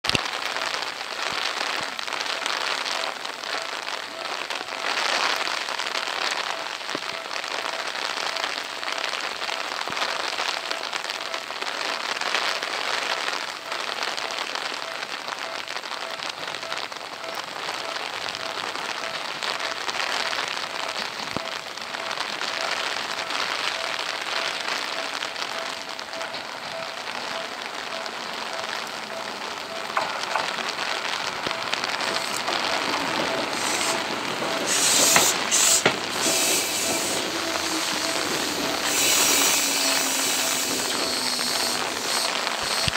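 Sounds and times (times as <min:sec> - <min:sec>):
rain pattering: 0:00.0 - 0:42.9.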